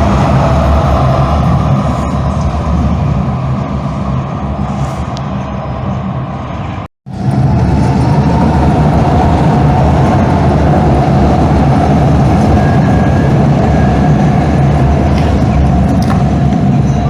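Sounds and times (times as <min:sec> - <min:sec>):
deep hum: 0:00.0 - 0:17.0
light-rail car rumbling: 0:00.0 - 0:17.0.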